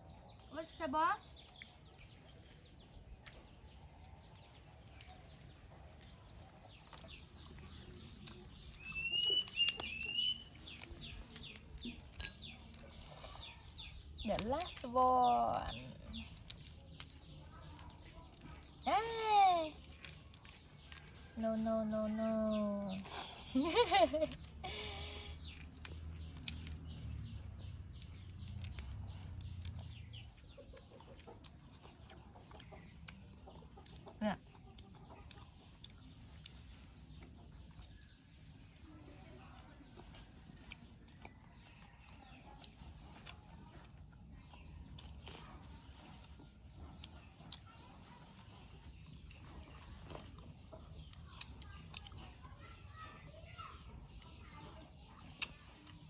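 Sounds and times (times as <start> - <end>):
birds chirping: 0.0 - 56.0
bird whistling call: 8.8 - 10.6.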